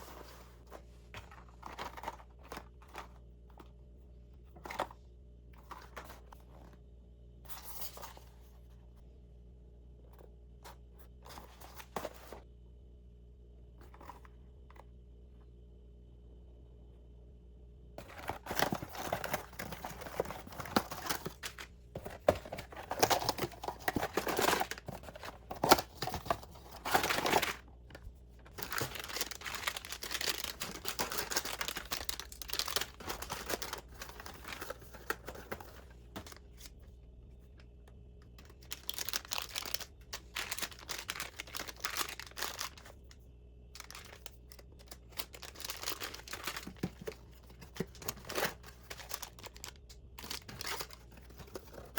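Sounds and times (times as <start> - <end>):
packaging crinkling and rustling: 0.0 - 3.7, 18.0 - 36.9, 38.3 - 51.9.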